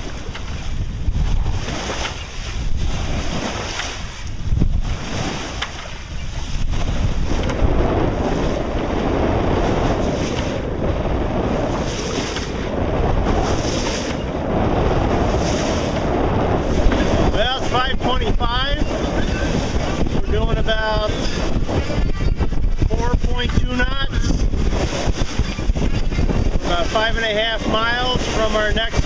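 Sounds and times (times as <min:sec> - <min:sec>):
water rushing along hull: 0:00.0 - 0:29.0
wind buffeting microphone: 0:00.0 - 0:29.0.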